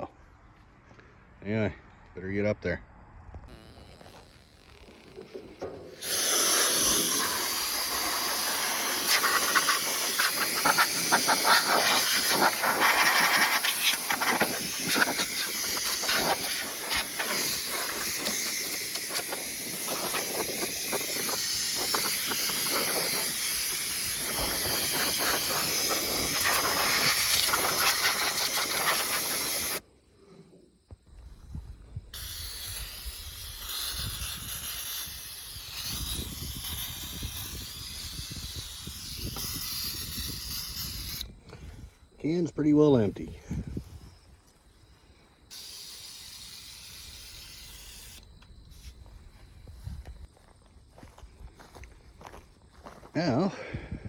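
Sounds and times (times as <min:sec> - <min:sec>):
compressed air hissing from blow gun: 0:03.5 - 0:29.8, 0:32.1 - 0:41.9, 0:44.9 - 0:50.0.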